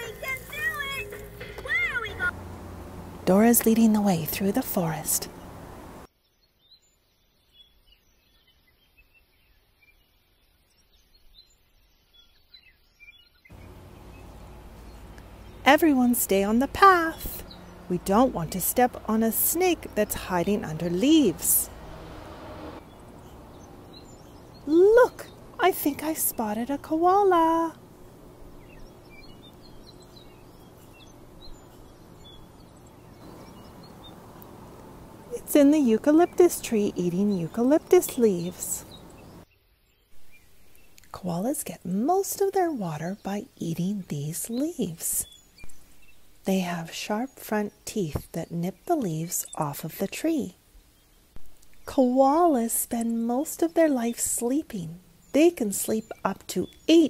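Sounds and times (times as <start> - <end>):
steady low background noise: 0.0 - 6.1, 13.5 - 57.0
low background noise: 0.0 - 7.5, 13.5 - 57.0
wild birds chirping: 0.0 - 57.0.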